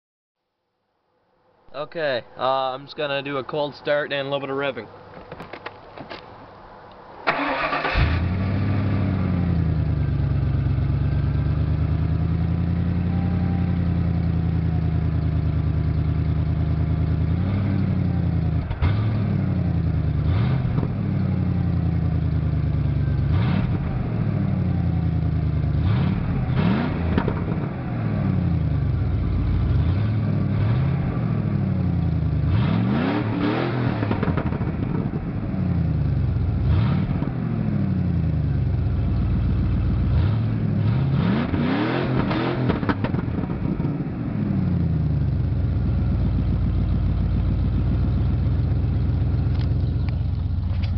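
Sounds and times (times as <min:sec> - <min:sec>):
engine cranking and starting: 0:07.2 - 0:08.6
engine idling: 0:07.3 - 0:32.5, 0:37.5 - 0:41.1, 0:42.9 - 0:50.9
engine revving: 0:07.3 - 0:38.5, 0:39.4 - 0:45.1.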